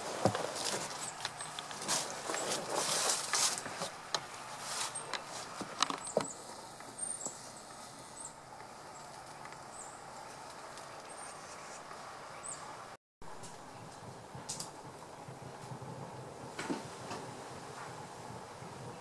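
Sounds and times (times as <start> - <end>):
soil and vines rustling: 0.0 - 19.0
small birds chirping: 0.4 - 3.4, 4.2 - 12.9.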